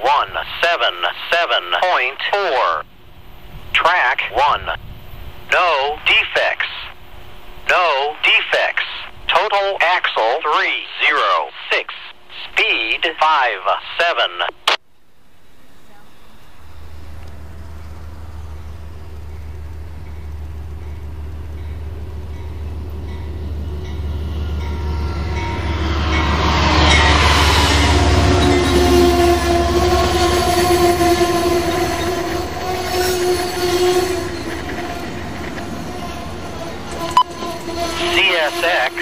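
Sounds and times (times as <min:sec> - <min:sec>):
diesel locomotive rumble: 0:15.4 - 0:39.0
high ringing tones from rail cars: 0:15.4 - 0:39.0.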